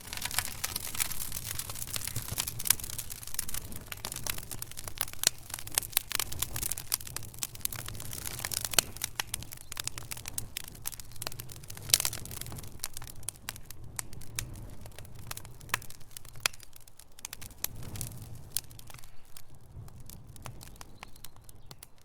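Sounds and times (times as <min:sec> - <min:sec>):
low fire rumble: 0:00.0 - 0:22.0
wood fire crackling: 0:00.0 - 0:22.0.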